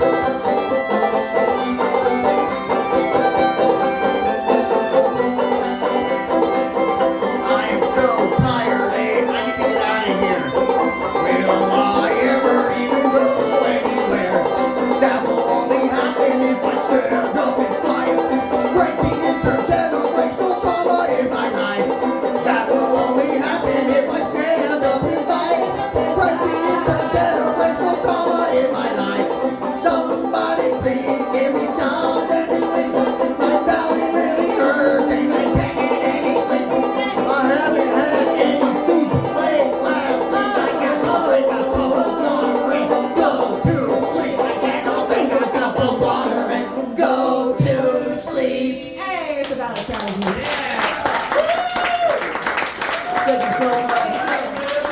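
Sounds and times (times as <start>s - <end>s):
string band music with banjo: 0.0s - 51.5s, 52.3s - 54.9s.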